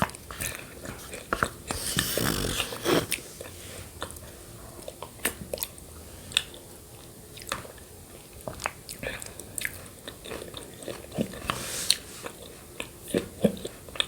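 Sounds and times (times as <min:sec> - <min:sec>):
chewing: 0:00.4 - 0:04.1, 0:08.4 - 0:14.0
wet mouth clicks: 0:01.7 - 0:03.2.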